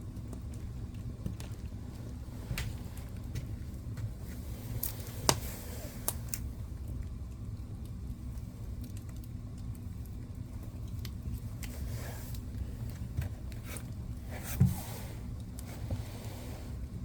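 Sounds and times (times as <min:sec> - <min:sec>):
wood fire burning: 0:00.0 - 0:17.0
fire hissing: 0:02.2 - 0:06.9, 0:11.4 - 0:12.9, 0:13.7 - 0:17.0.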